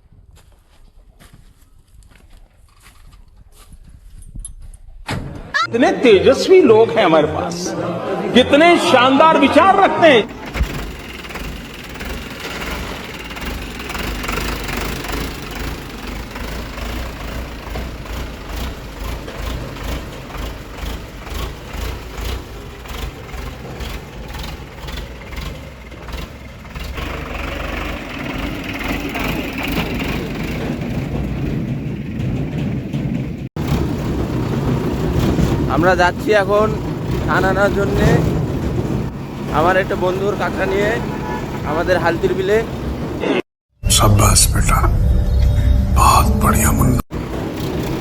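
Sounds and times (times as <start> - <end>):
tractor engine running: 10.1 - 44.4, 46.0 - 48.0.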